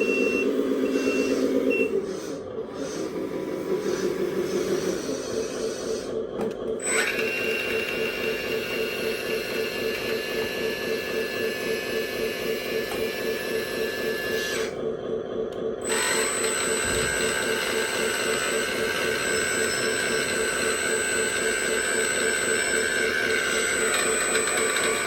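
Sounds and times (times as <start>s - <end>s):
higher whine: 0.0s - 7.0s
hydraulic pump pulsing whine: 0.0s - 25.0s.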